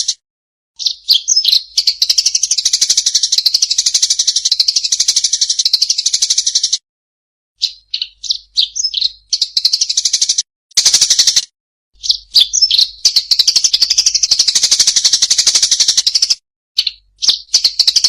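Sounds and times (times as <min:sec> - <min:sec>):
songbird singing trills: 0:00.8 - 0:06.8, 0:07.6 - 0:11.4, 0:12.0 - 0:18.0.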